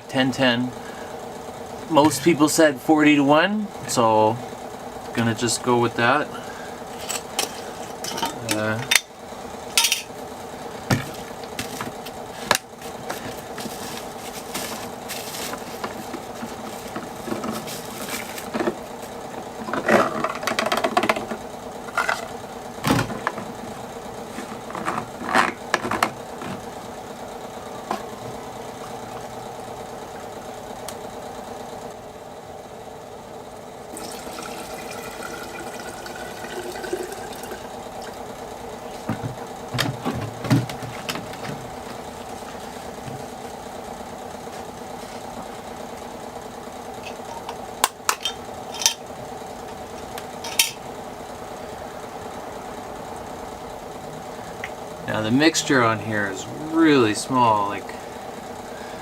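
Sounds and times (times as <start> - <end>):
steady background hum: 0.0 - 59.0
fuel can and jar clinking: 9.7 - 10.2
liquid pouring into jar: 34.0 - 37.6.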